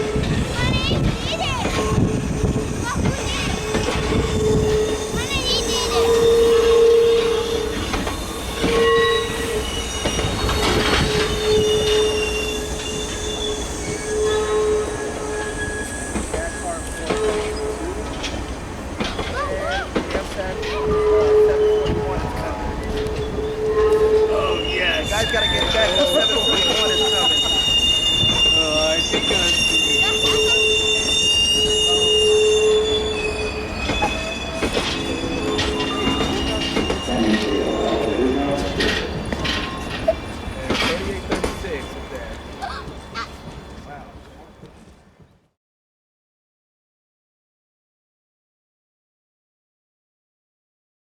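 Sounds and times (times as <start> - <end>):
train wheels squealing on rails: 0.0 - 45.4
low rolling rumble: 31.6 - 44.9.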